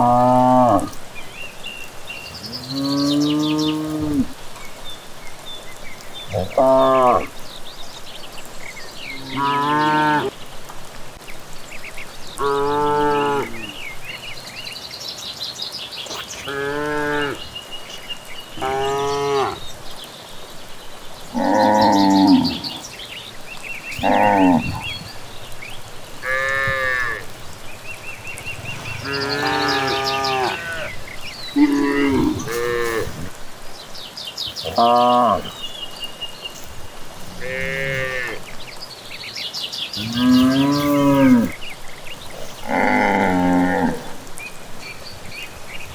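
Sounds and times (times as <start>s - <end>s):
cattle mooing: 0.0s - 1.0s, 24.0s - 25.1s, 26.2s - 27.3s, 28.4s - 31.0s, 31.6s - 33.2s, 37.3s - 38.4s, 42.6s - 44.1s
small birds chirping: 0.0s - 45.9s.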